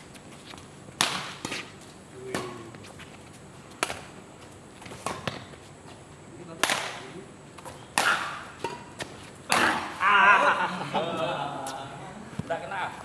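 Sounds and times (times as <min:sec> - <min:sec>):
rackets hitting shuttlecock: 0:01.0 - 0:01.7, 0:02.3 - 0:02.7, 0:03.8 - 0:04.1, 0:06.6 - 0:07.0, 0:07.6 - 0:10.0.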